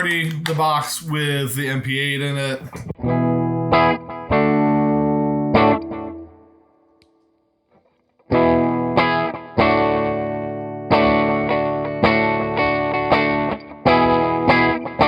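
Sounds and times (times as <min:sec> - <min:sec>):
distorted electric guitar chords: 0:02.7 - 0:06.5, 0:08.3 - 0:15.0.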